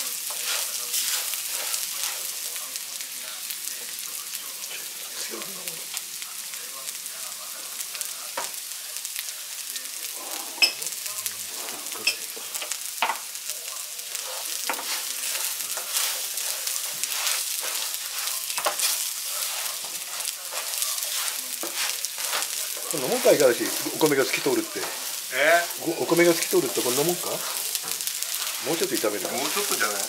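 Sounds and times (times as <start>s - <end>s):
rice and onion sizzling in oil: 0.0s - 30.0s
spatula scraping and tapping pan: 0.2s - 2.3s, 14.1s - 23.8s.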